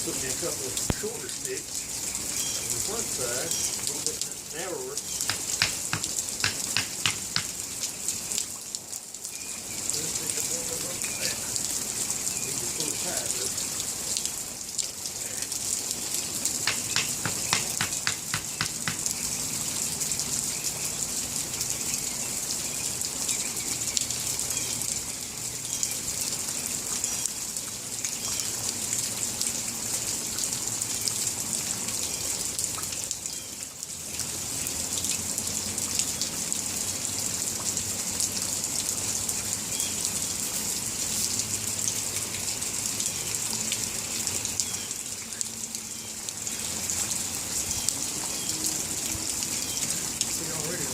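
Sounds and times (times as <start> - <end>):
steady rain: 0.0 - 50.9.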